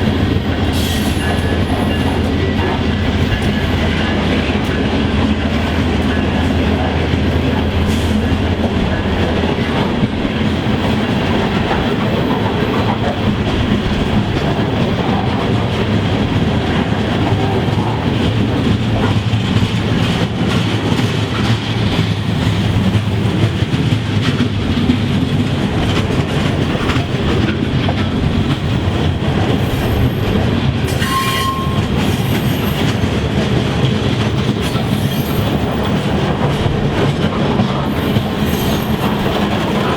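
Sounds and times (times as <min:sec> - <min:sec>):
train rolling past: 0:00.0 - 0:39.9
wheels clicking over rail joints: 0:01.1 - 0:39.9
high squeal: 0:30.9 - 0:32.8, 0:38.4 - 0:39.2.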